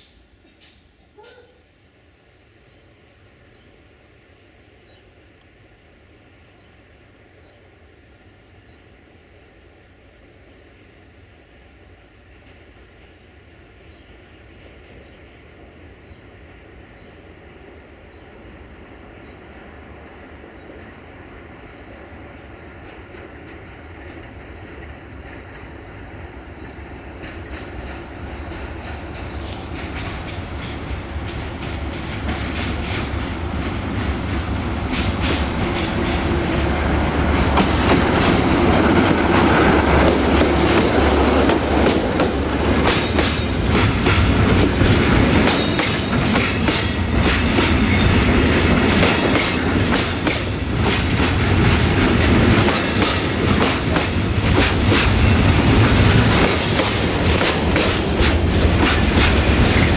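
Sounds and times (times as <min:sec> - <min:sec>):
diesel locomotive engine drone: 0:00.0 - 0:59.9
wagon wheels clattering on rails: 0:37.3 - 0:59.9.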